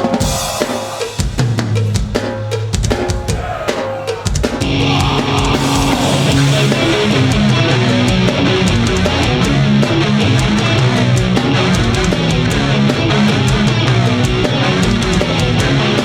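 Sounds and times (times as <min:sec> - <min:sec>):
drum kit playing: 0:00.0 - 0:16.0
metal band playing: 0:00.0 - 0:16.0
distorted electric guitars: 0:04.2 - 0:16.0
bass guitar: 0:04.6 - 0:16.0.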